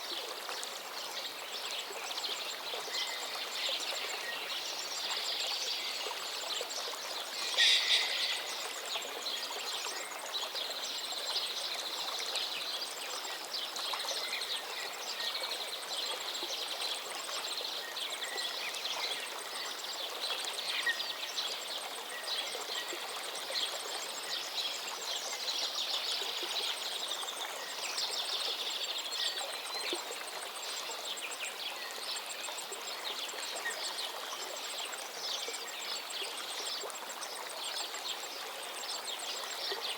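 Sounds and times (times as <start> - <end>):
stream flowing: 0.0 - 39.9
songbirds chirping and trilling: 1.3 - 10.8.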